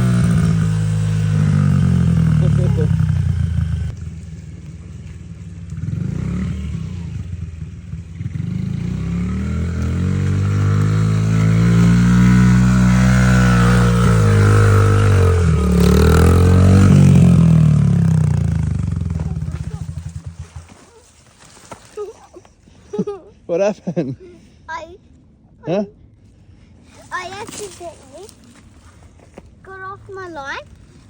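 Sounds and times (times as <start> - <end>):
pit bike engine revving: 0.0 - 21.0.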